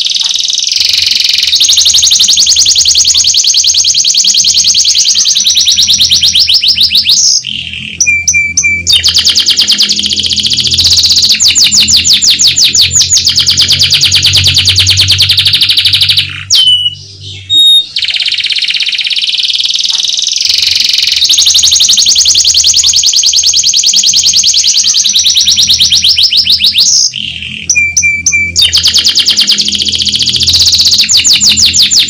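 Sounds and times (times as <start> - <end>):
canary singing trills: 0.0 - 32.0.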